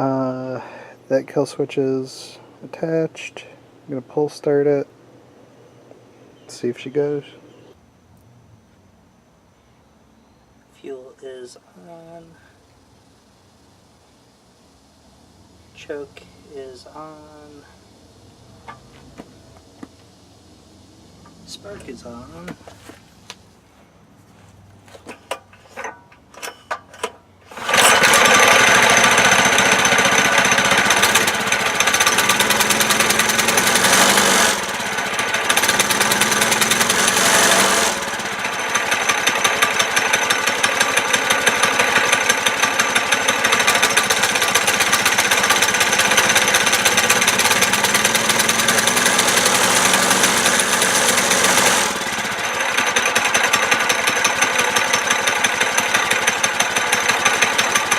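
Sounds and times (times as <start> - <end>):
recoil starter clicks and rattles: 25.0 - 57.9
small engine running: 27.4 - 57.9.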